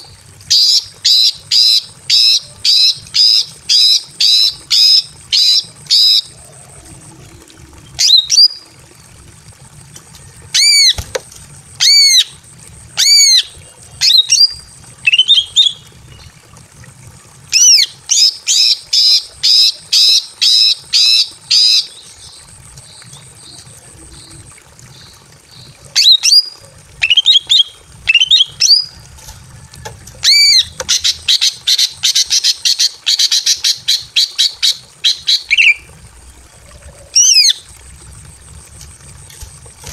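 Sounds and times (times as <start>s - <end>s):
bird calling sharp notes: 30.2s - 37.7s.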